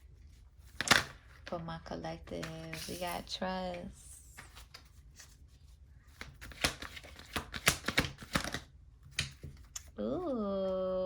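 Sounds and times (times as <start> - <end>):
cards being shuffled: 2.2 - 9.9.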